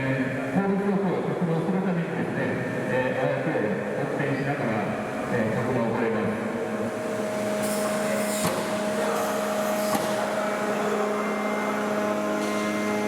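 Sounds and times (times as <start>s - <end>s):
hydraulic machinery whine and hum: 0.0s - 13.0s.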